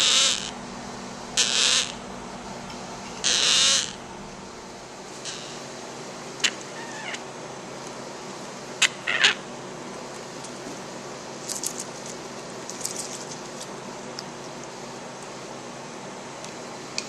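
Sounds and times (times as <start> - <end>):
parrot chick calling: 0.0 - 0.6, 1.4 - 2.0, 3.2 - 4.0, 5.2 - 5.6, 6.4 - 7.2, 8.8 - 9.4.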